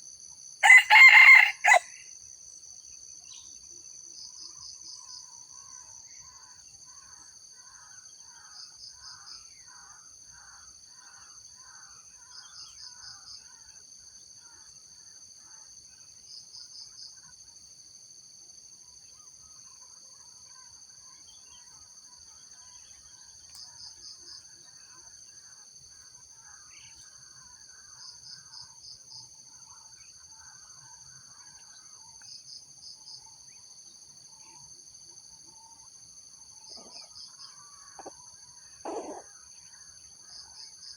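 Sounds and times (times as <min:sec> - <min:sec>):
insects droning shrilly: 0:00.6 - 0:02.0, 0:35.7 - 0:40.9.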